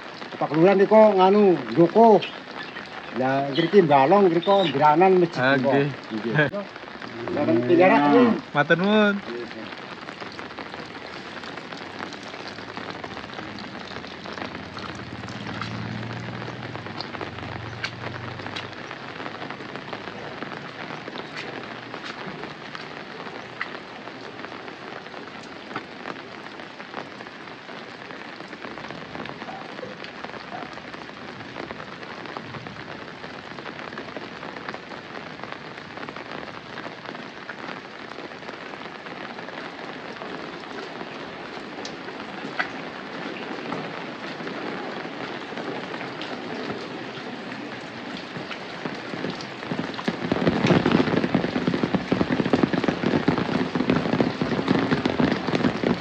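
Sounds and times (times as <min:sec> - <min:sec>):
raindrops tapping: 0:00.0 - 0:56.0
steady rain falling: 0:00.0 - 0:56.0.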